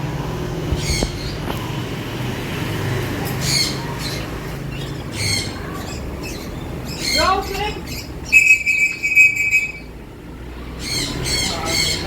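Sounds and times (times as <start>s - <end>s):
lovebirds squawking: 3.3s - 12.0s.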